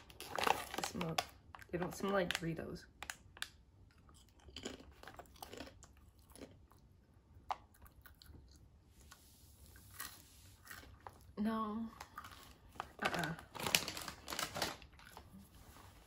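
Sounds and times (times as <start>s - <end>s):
crunching tortilla chip: 3.1s - 6.8s.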